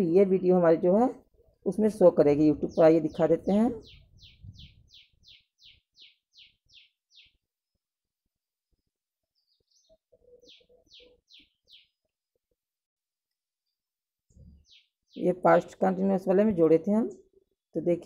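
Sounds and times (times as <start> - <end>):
bird chirping: 1.4 - 7.8, 8.7 - 12.6, 13.6 - 16.2.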